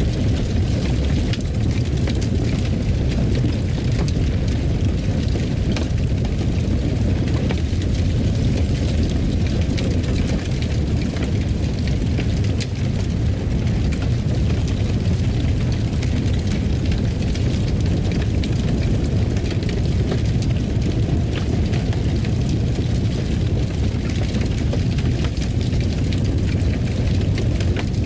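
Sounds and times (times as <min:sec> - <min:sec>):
fire crackling and popping: 0:00.0 - 0:28.0
low rumble of flames: 0:00.0 - 0:28.0.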